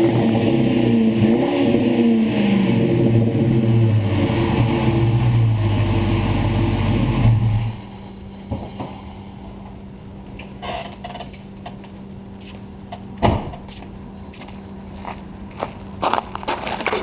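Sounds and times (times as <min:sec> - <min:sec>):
engine revving: 0:00.0 - 0:08.1.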